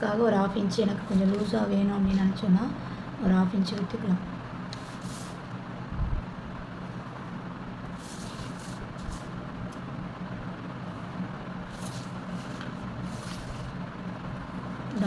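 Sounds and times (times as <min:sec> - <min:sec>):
low background hum: 0:00.0 - 0:15.0
scratching of lines drawn: 0:04.7 - 0:05.5, 0:07.8 - 0:09.8, 0:11.6 - 0:13.8.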